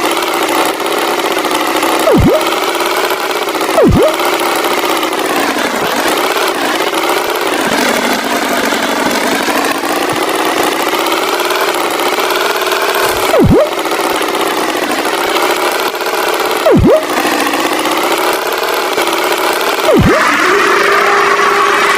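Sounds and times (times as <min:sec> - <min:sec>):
cartoon tractor engine: 0:00.0 - 0:21.9
loud pitch swoop: 0:02.1 - 0:02.6, 0:03.8 - 0:04.2, 0:13.3 - 0:13.8, 0:16.7 - 0:17.2.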